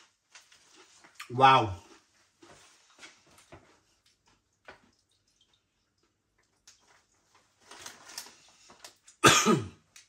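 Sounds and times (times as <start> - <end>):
crunchy snacks being chewed: 6.6 - 9.2.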